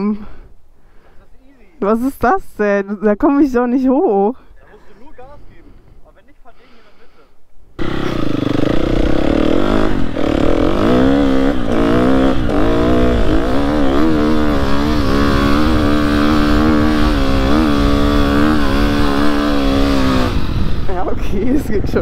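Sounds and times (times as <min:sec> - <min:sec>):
dirt bike engine revving: 0:07.8 - 0:21.1.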